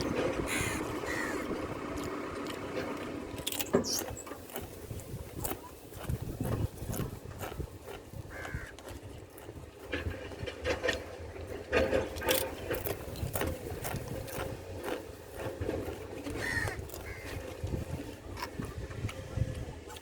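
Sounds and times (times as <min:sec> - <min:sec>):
crows calling: 0:00.3 - 0:02.1, 0:08.3 - 0:09.4, 0:16.2 - 0:18.1
sharp knocks and scrapes: 0:02.4 - 0:19.1.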